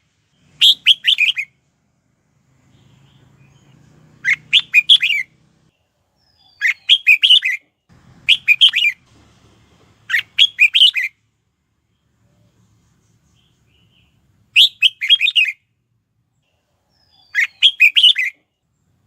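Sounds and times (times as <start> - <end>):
bird singing whistled phrases: 0.4 - 1.5, 4.2 - 5.3, 6.3 - 7.6, 8.3 - 9.0, 10.1 - 11.1, 14.6 - 15.6, 16.9 - 18.4.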